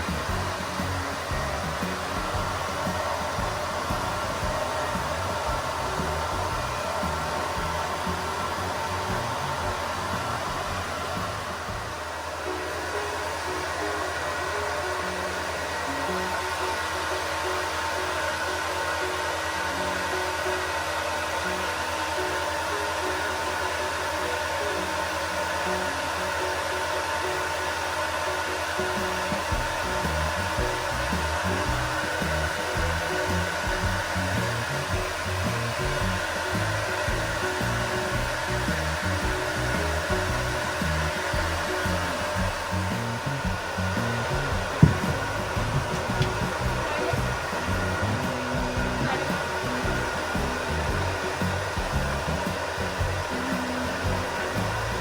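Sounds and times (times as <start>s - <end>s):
hair dryer blowing: 0.0s - 55.0s
sharp knock: 44.7s - 46.7s.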